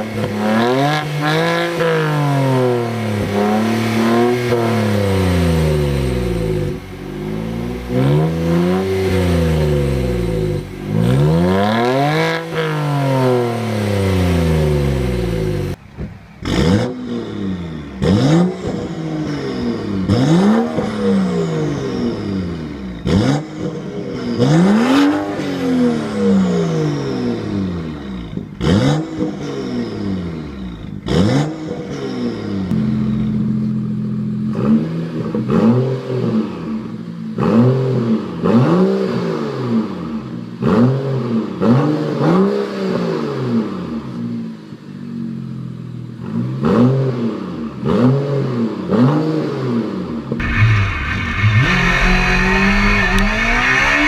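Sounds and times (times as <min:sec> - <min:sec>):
car engine revving: 0:00.0 - 0:43.8, 0:46.2 - 0:54.0
exhaust cracks: 0:50.4 - 0:54.0.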